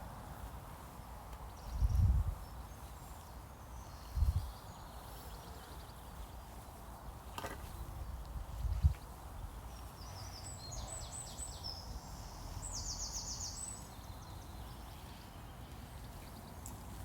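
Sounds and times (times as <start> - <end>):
small bird singing high chirps: 9.8 - 16.6.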